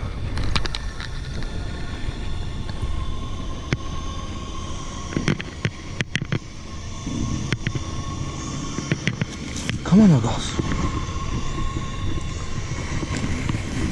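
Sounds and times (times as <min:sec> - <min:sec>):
bike rattling over bumps: 0:00.0 - 0:13.9
bike tyre noise: 0:00.0 - 0:13.9
wind rumble on microphone: 0:00.0 - 0:13.9.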